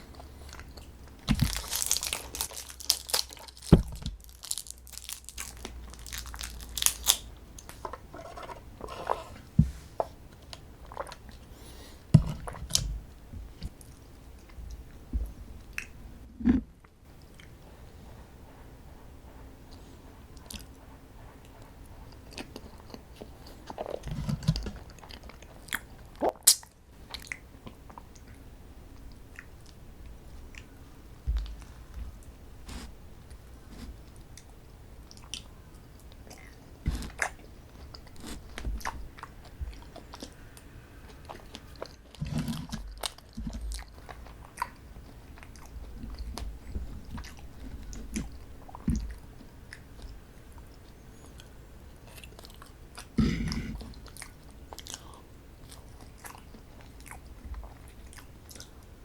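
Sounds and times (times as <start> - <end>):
person chewing: 0.0 - 9.3, 10.8 - 12.8, 35.1 - 58.8.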